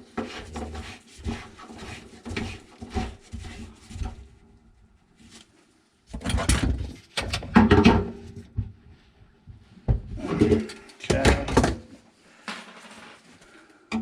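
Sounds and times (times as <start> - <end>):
plumbing fittings being rummaged: 6.1 - 8.4, 10.1 - 11.8.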